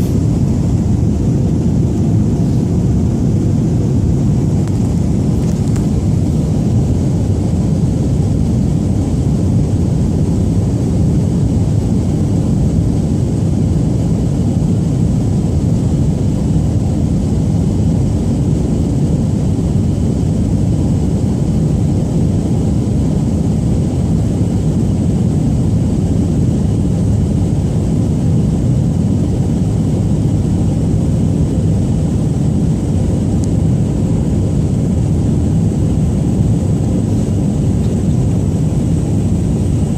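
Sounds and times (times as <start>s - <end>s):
thin high whine: 0.0s - 7.2s
jet engine rumble: 0.0s - 39.9s
rushing air in cabin: 0.0s - 39.9s.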